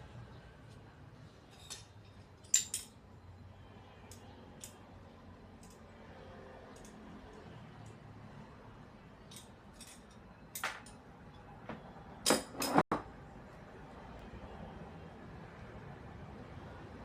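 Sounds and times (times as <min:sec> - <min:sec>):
light clinks and knocks: 0:01.5 - 0:03.0.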